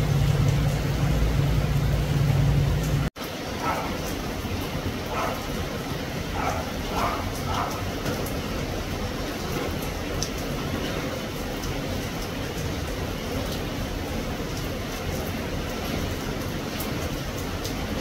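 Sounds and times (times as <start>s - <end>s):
deep rumble: 0.0s - 3.1s
rain drops ticking: 0.0s - 18.0s
steady rain hiss: 0.0s - 18.0s.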